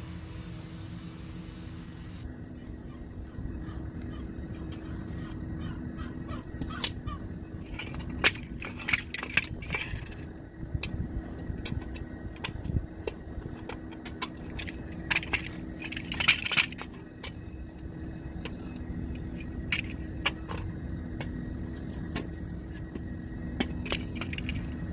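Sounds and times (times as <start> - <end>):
car engine running: 0.0 - 24.9
gearbox clunks and rattling knocks: 7.6 - 24.9.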